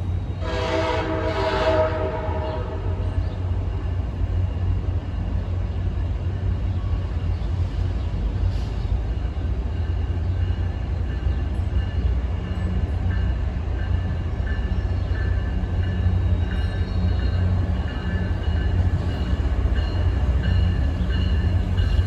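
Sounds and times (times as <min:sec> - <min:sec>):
train rumbling: 0:00.0 - 0:22.0
train horn: 0:00.4 - 0:03.5.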